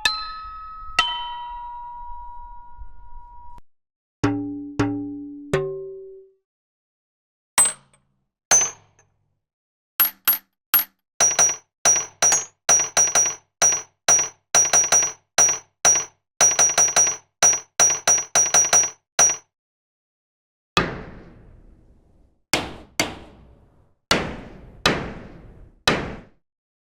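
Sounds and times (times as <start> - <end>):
short metallic clinks: 10.0 - 19.4.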